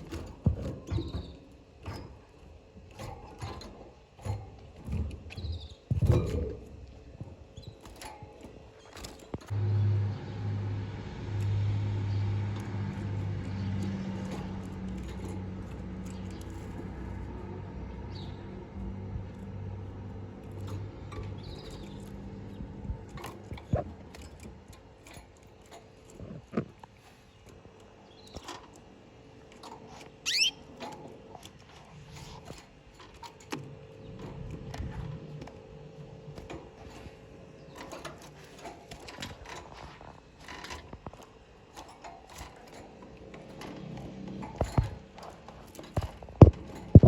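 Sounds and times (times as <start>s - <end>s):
light taps and clicks in cage: 11.3s - 47.0s
canary chirp: 30.2s - 30.7s.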